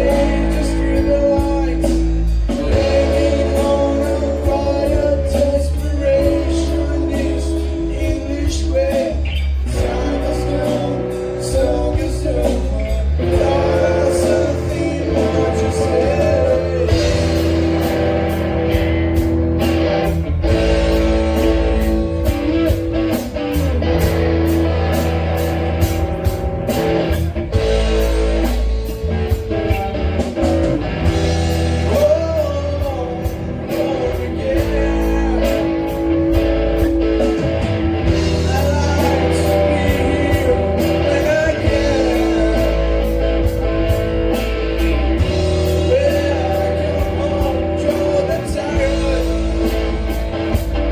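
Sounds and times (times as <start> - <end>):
person singing: 0.0 - 18.2, 31.6 - 44.0, 45.2 - 50.9
bass guitar: 0.0 - 50.9
drums with cymbals: 0.0 - 50.9
electric guitar: 0.0 - 50.9.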